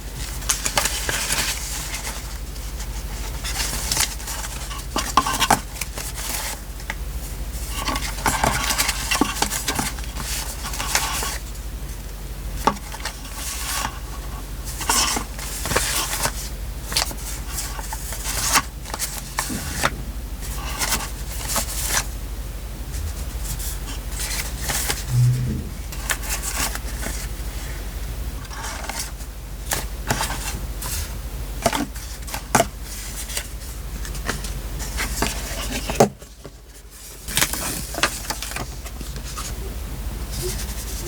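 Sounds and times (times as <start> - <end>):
paper crinkling and rustling: 0.2 - 6.9, 7.6 - 11.5, 12.7 - 19.9, 31.6 - 39.5
low steady hum: 18.8 - 29.7.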